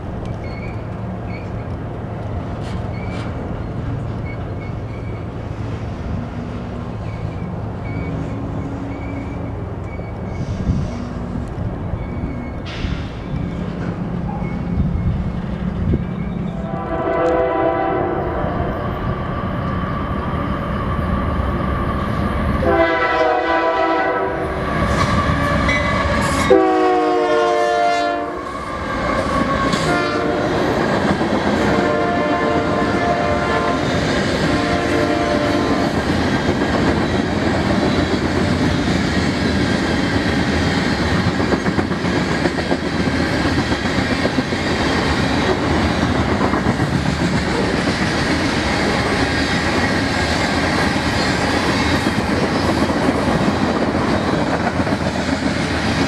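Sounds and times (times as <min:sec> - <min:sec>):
locomotive air horn blasts: 0:16.6 - 0:18.6, 0:22.6 - 0:24.5, 0:25.2 - 0:30.6, 0:31.7 - 0:33.9, 0:34.5 - 0:35.8
freight cars clattering on rails: 0:29.1 - 0:56.0.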